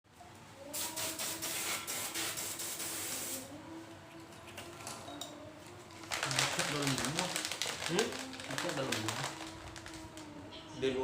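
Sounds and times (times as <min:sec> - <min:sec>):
spray paint hissing: 0:00.7 - 0:03.5.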